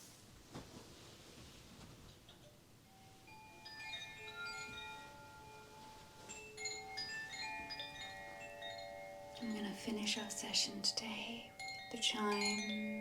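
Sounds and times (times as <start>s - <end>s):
metal chimes ringing: 2.9s - 13.0s.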